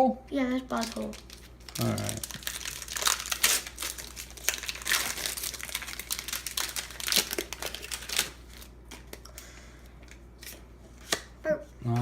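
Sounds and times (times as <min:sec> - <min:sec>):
foil wrapper crinkling: 0:00.6 - 0:09.3.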